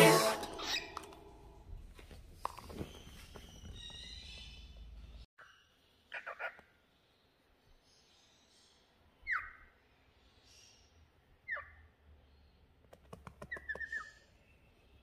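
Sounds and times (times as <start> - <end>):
cockatiel calling: 0.0 - 1.2
bird clicks: 12.9 - 14.0.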